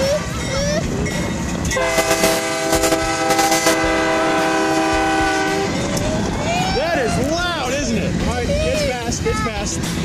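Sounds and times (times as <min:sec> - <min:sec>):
train rumble and wheel clatter: 0:00.0 - 0:10.0
locomotive air horn blast: 0:01.7 - 0:05.8.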